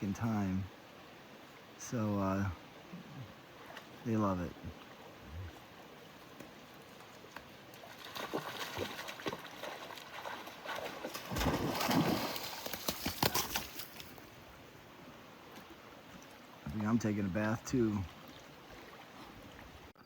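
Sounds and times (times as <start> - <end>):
water splashing: 2.9 - 14.4, 15.5 - 19.9.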